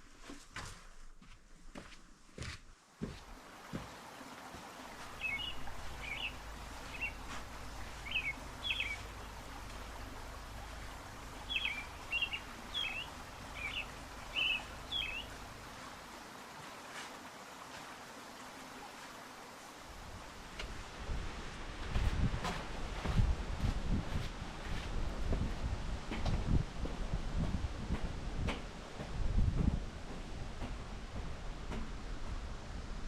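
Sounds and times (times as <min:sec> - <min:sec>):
soft hiss of forest ambience: 0:00.0 - 0:33.0
songbird chirping: 0:03.6 - 0:17.0.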